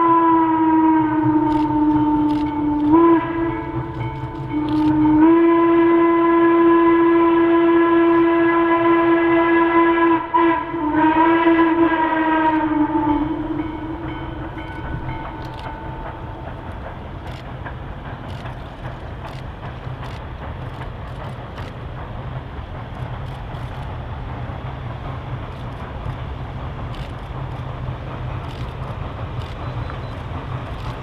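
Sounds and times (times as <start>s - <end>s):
steam locomotive whistle: 0.0s - 16.7s
train running rumble: 0.0s - 31.0s.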